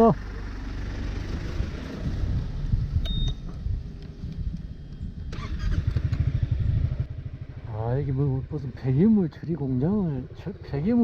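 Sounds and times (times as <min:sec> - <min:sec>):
vehicle engine idling: 0:00.0 - 0:11.0
short electronic beep: 0:03.1 - 0:03.4.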